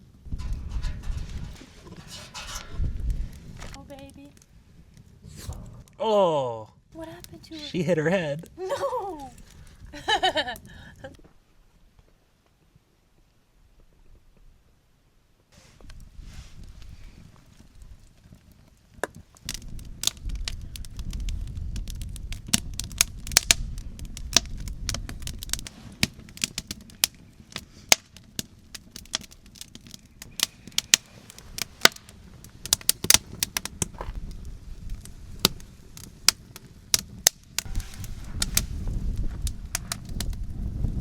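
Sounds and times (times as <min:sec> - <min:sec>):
wind rumble on microphone: 0:00.0 - 0:05.9, 0:09.2 - 0:11.2, 0:15.8 - 0:26.0, 0:31.2 - 0:41.0
campfire crackling: 0:00.0 - 0:41.0
wood snaps and pops: 0:18.3 - 0:40.5.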